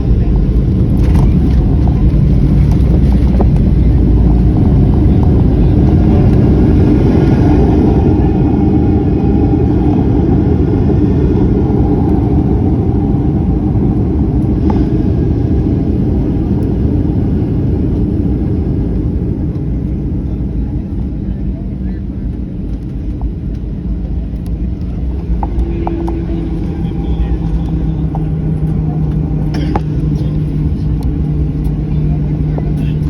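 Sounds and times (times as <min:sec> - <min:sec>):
airliner engines and runway rumble: 0:00.0 - 0:33.0.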